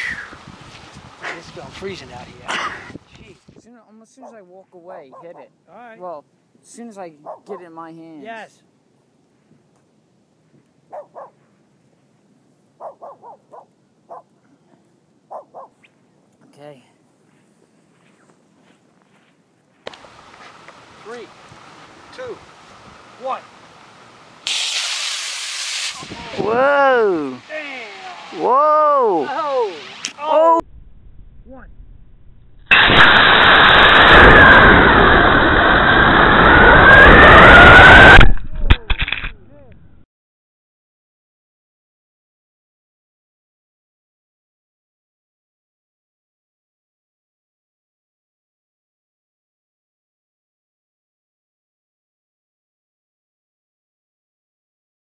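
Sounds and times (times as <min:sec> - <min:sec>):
dog barking: 0:05.1 - 0:05.5, 0:07.2 - 0:07.7, 0:10.9 - 0:11.4, 0:12.8 - 0:14.3, 0:15.3 - 0:15.8
model rocket roaring in flight: 0:32.7 - 0:38.3
rocket whistle: 0:32.7 - 0:38.3.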